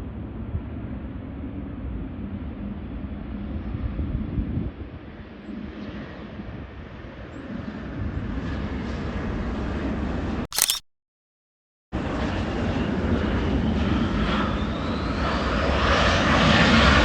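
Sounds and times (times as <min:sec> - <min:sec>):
short loud crackle: 0:10.5 - 0:10.8.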